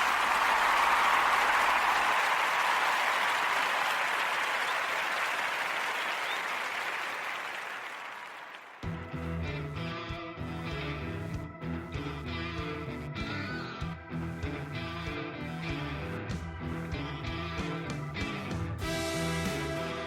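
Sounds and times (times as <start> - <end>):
crowd applause: 0.0 - 9.0, 18.8 - 20.0
guitar music: 8.9 - 20.0.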